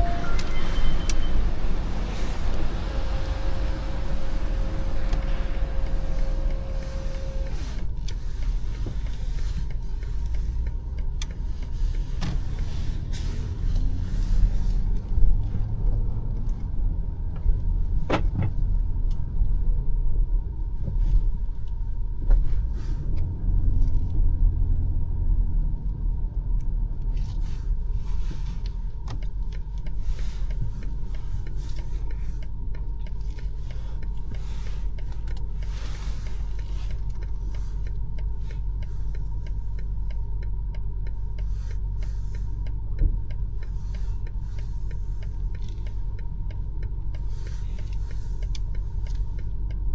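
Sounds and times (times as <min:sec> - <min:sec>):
car engine and road noise: 0:00.0 - 0:49.9.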